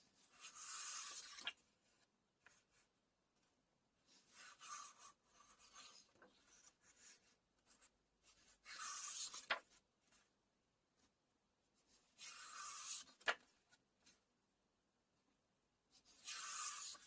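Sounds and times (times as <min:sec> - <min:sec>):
page swishing: 0:00.4 - 0:01.6
pages rustling: 0:00.4 - 0:02.8, 0:08.6 - 0:10.2, 0:12.2 - 0:14.2.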